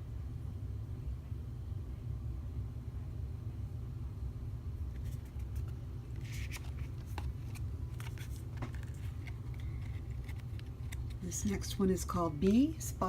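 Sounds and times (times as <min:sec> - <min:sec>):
low background hum: 0:00.0 - 0:13.0
card sliding against card: 0:05.0 - 0:11.1
cards clicking and tapping: 0:05.0 - 0:11.2.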